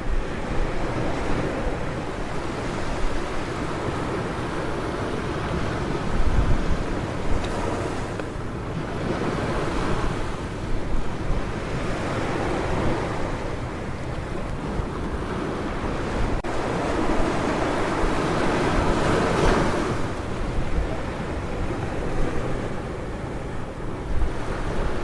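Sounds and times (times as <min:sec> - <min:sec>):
sea waves washing onto beach: 0:00.0 - 0:25.0
wind buffeting microphone: 0:00.0 - 0:25.0.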